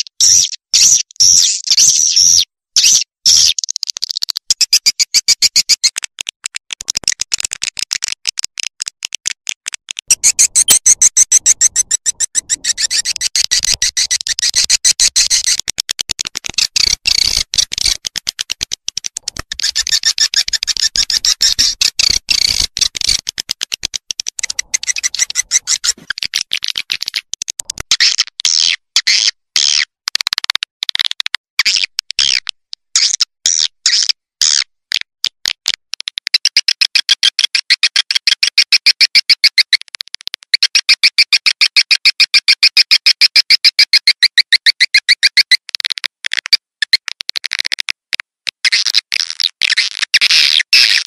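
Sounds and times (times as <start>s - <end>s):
swiftlets twittering: 10.1s - 14.6s.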